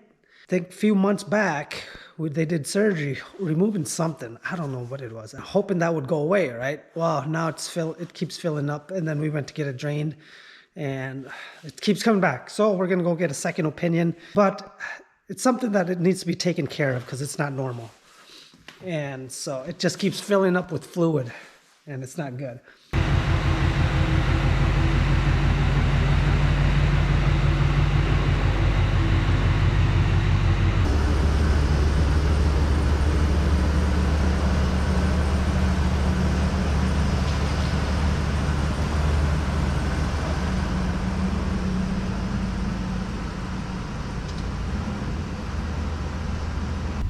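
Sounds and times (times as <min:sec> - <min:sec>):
vehicle engine humming: 0:23.0 - 0:47.0.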